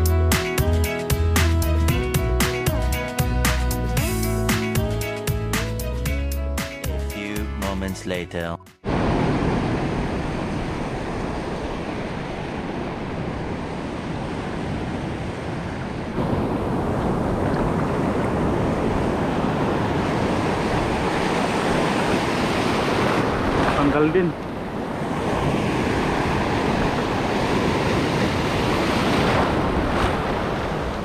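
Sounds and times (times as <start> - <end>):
ocean surf breaking: 8.8 - 31.0
wind buffeting microphone: 8.9 - 31.0.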